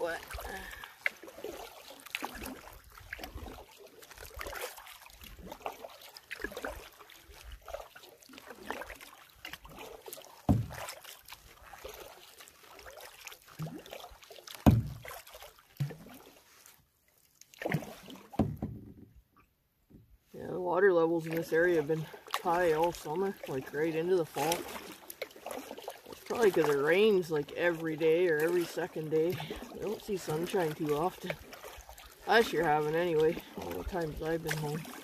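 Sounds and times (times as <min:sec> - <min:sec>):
canoe paddle pulling through water: 0:00.0 - 0:35.0
water trickling off paddle: 0:00.0 - 0:35.0.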